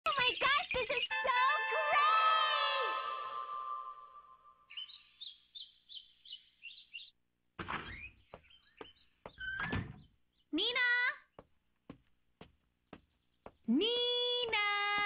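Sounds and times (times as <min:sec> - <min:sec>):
music: 0:01.1 - 0:04.4.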